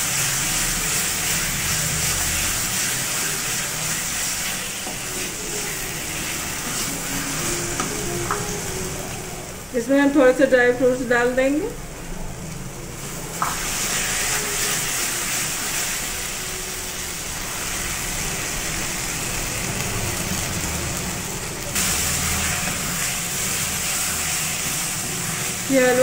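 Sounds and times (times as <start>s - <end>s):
sizzling in hot fat: 0.0s - 26.0s.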